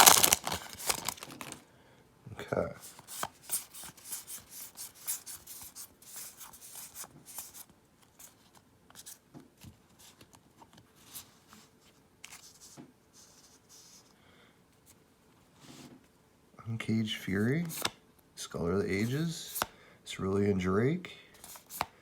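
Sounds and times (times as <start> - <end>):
cards and wrapper rustling: 0.0 - 1.6, 2.8 - 9.2.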